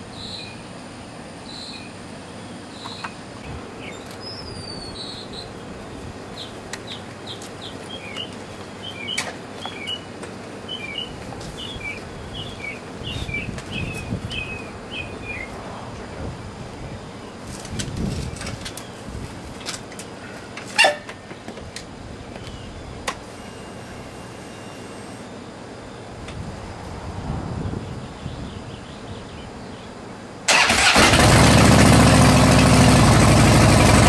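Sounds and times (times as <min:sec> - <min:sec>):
songbird chirping: 0:00.1 - 0:00.7, 0:01.4 - 0:19.1, 0:27.8 - 0:30.2.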